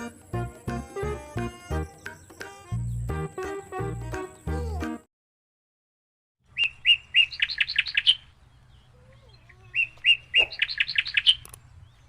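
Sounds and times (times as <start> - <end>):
bird chirping: 6.4 - 12.0.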